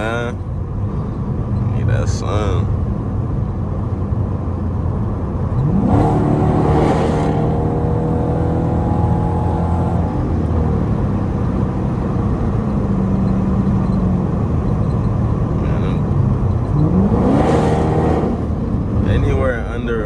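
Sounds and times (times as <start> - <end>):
car exhaust accelerating hard: 4.8 - 19.6.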